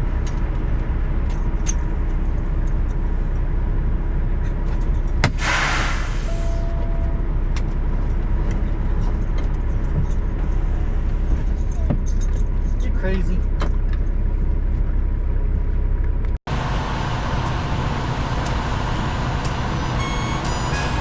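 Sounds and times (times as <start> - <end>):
truck engine running: 0.0 - 21.0
air brakes hissing: 5.2 - 7.3, 16.7 - 21.0
short beep: 5.4 - 7.4, 19.4 - 21.0.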